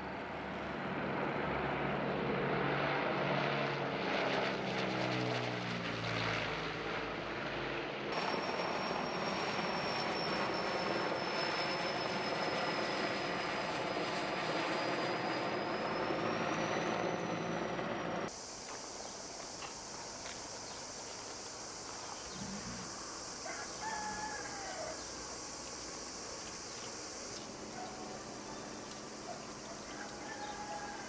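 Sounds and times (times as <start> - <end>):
aircraft engine noise: 0.0 - 31.0
aircraft flying past: 0.0 - 31.0
high turbine whine: 7.9 - 31.0.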